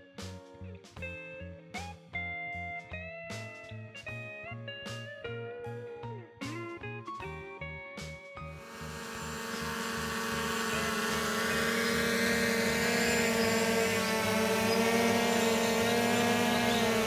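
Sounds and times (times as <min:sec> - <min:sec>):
drone motors whining: 0:08.6 - 0:17.0.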